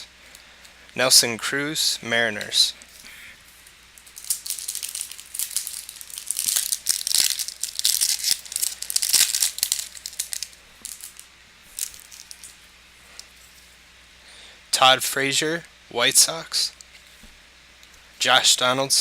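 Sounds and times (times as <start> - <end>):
card pack wrapper crinkling: 2.9 - 12.6.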